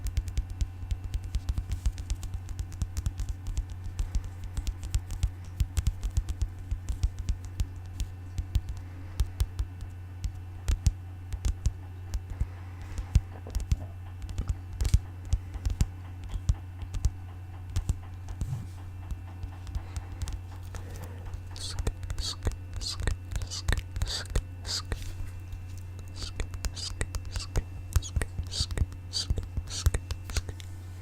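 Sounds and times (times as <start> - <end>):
rapid tapping on an object: 0.0 - 25.0, 26.0 - 30.6
steady low hum: 0.0 - 31.0.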